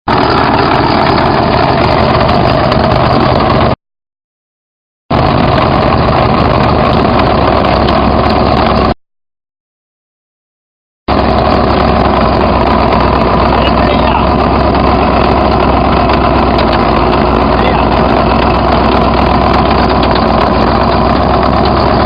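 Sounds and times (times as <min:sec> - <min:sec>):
engine running steadily: 0:00.1 - 0:03.8, 0:05.1 - 0:09.0, 0:11.1 - 0:22.0.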